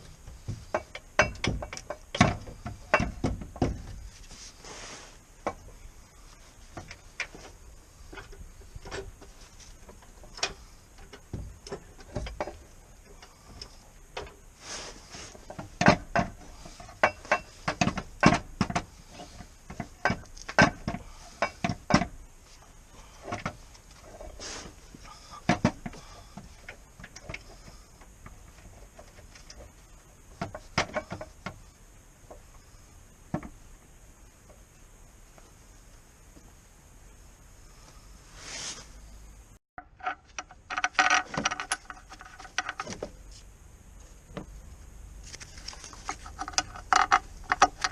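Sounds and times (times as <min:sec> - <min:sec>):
tools and metal parts clattering: 0:00.6 - 0:04.0, 0:15.5 - 0:22.1, 0:39.8 - 0:43.0.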